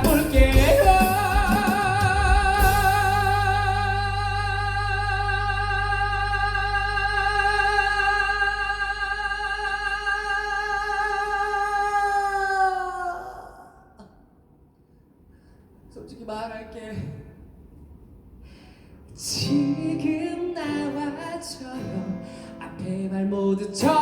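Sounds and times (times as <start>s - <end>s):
person singing long note with vibrato: 0.0s - 14.1s.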